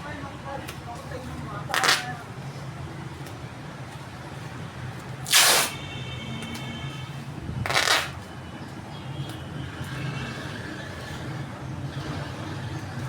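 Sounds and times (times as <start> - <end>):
packing material ripping: 1.7 - 2.2, 5.2 - 5.8, 7.7 - 8.2.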